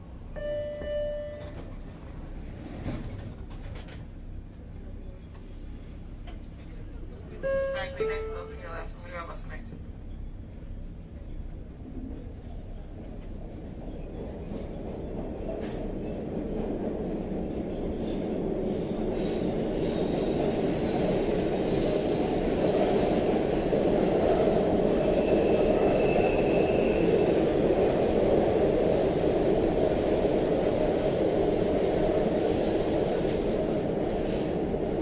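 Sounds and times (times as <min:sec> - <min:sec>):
subway train rumbling on rails: 0:00.0 - 0:35.0.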